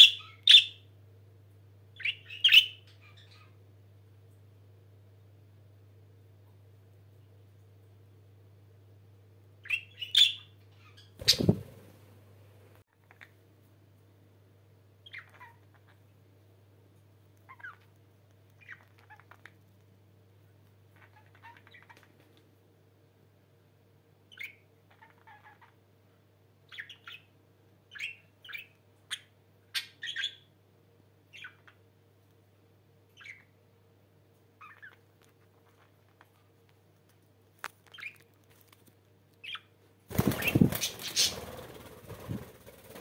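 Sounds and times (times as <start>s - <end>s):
budgerigars chirping: 0.0s - 0.8s, 2.0s - 3.5s, 9.6s - 11.6s, 27.9s - 30.4s
steady low hum: 39.0s - 43.0s.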